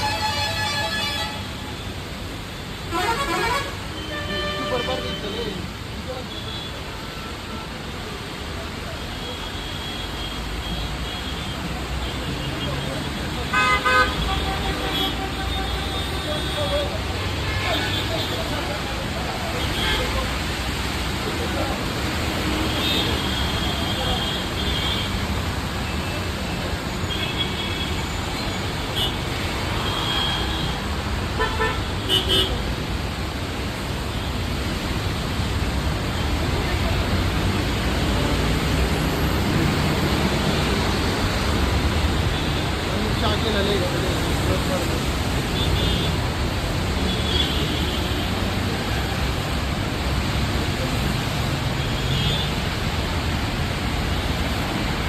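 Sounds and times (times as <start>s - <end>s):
heavy rain pouring: 0.0s - 55.0s
road traffic: 0.0s - 55.0s
vehicle horns honking: 2.9s - 5.3s, 13.5s - 18.3s, 31.4s - 32.6s.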